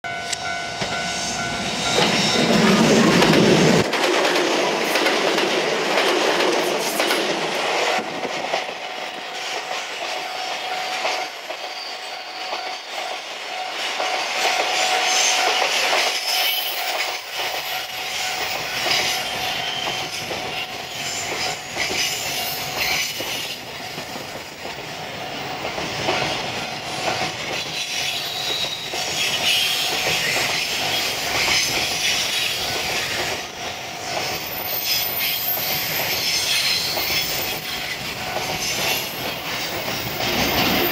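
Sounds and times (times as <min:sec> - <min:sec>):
electric commuter train passing: 0:00.0 - 0:40.9
freight train rolling slowly: 0:00.0 - 0:40.9
thin steady wheel squeal: 0:11.6 - 0:13.0, 0:16.2 - 0:23.6, 0:27.6 - 0:40.9.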